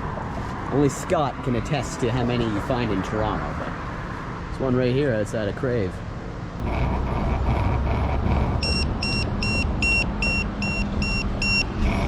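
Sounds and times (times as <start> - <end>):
low vehicle rumble: 6.4 - 12.0
order pager beeping rapidly: 8.6 - 11.7.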